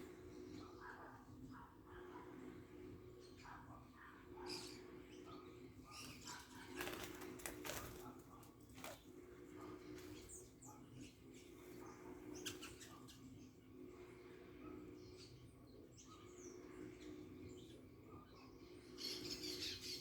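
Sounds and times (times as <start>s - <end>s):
faint steady hum: 0.0s - 20.0s
birds fluttering wings: 5.9s - 10.6s.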